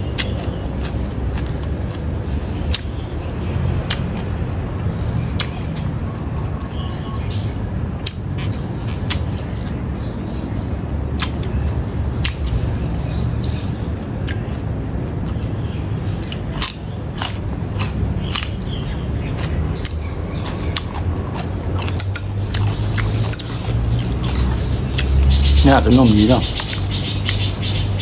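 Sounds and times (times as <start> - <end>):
cucumber crunching and chewing: 0.0 - 4.5, 5.1 - 10.4, 11.1 - 13.6, 14.2 - 25.5, 26.4 - 27.8.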